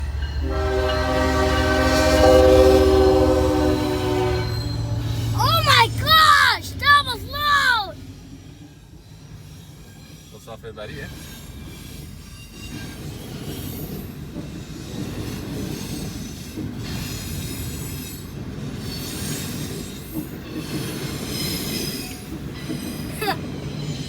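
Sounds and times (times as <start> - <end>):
train wheels rumbling on rails: 0.0 - 7.4, 8.0 - 24.0.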